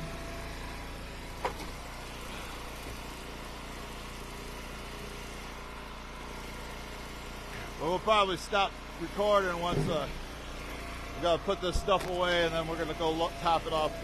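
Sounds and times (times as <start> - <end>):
wood splitter engine idling: 0.0 - 14.0.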